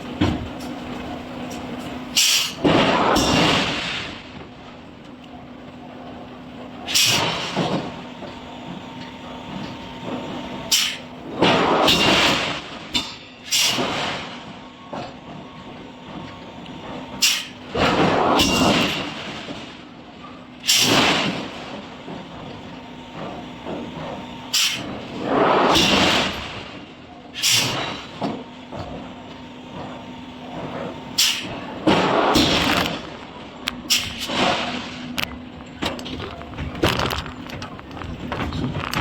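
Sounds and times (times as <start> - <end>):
steady machine hum: 21.7 - 39.0.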